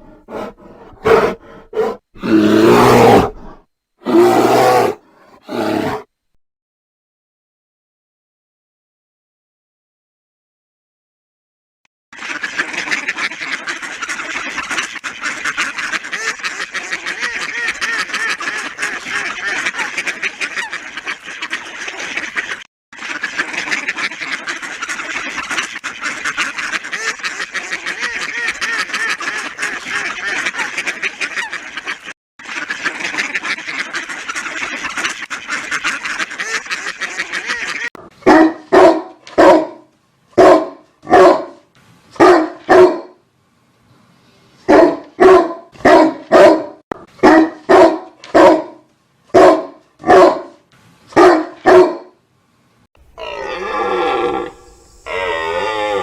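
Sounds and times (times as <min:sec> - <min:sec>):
dog barking loudly: 0:00.3 - 0:02.0, 0:38.2 - 0:39.8, 0:40.4 - 0:41.6, 0:42.2 - 0:43.2, 0:44.7 - 0:50.6, 0:51.2 - 0:52.1
waterfowl quacking and honking: 0:12.2 - 0:37.9.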